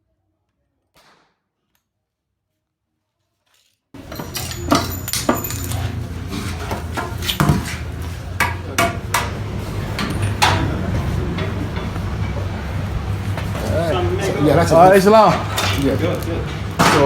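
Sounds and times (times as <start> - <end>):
sharp knocks of wood and tools: 4.0 - 12.5
steady low hum: 4.0 - 17.0.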